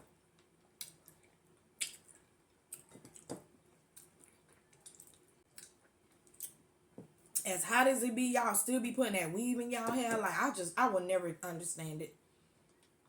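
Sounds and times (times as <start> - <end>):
wet chewing and lip smacks: 0.4 - 6.6.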